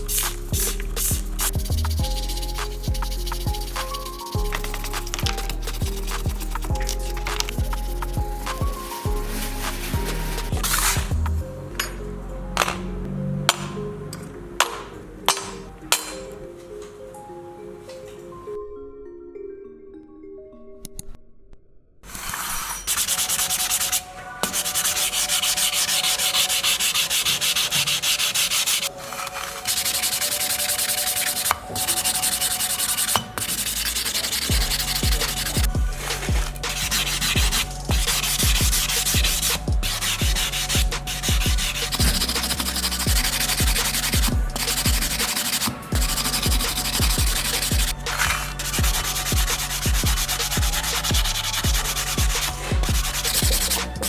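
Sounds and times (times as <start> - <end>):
sanding metal: 0.0 - 11.1, 22.1 - 54.0.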